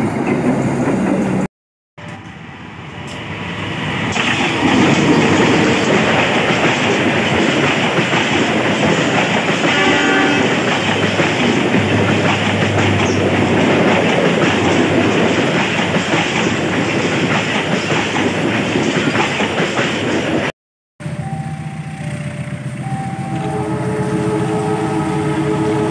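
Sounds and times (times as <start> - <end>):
train wheels clattering: 4.1 - 20.5
train horn: 9.6 - 10.8, 23.3 - 25.9.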